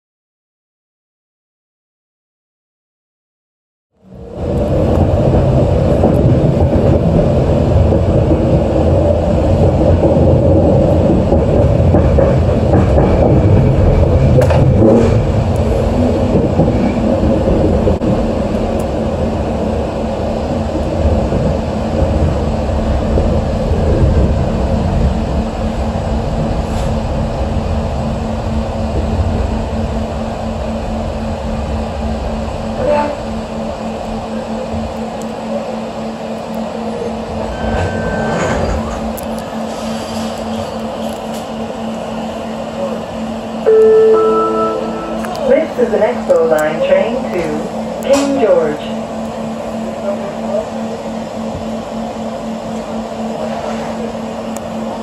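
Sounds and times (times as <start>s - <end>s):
train rumbling along track: 4.0s - 55.0s
steady hum: 13.4s - 37.6s, 40.4s - 55.0s.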